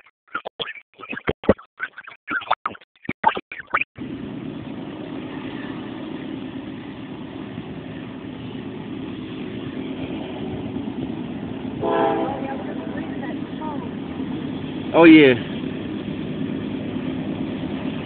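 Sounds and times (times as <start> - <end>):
diesel locomotive engine rumbling: 4.0 - 18.0.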